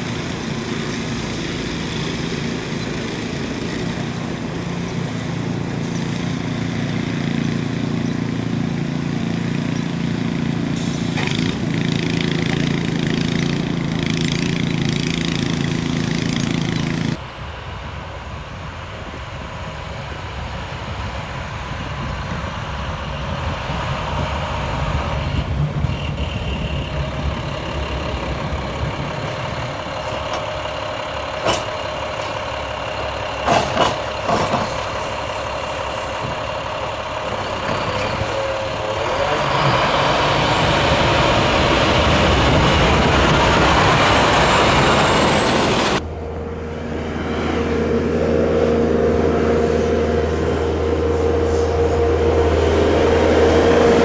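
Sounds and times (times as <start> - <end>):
heavy truck engines running: 0.0 - 54.0
sharp knocks and clanks: 31.4 - 32.4, 33.4 - 34.8.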